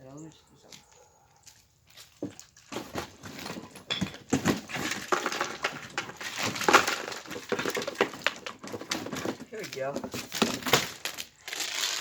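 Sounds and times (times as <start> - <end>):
plastic parts clicking and scraping: 2.7 - 12.0.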